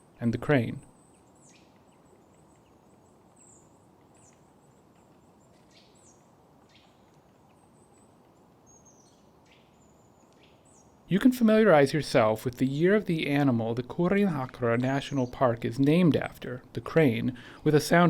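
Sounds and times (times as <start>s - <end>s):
small birds chirping: 0.0s - 11.3s, 12.2s - 18.0s
soft background hiss: 0.0s - 18.0s.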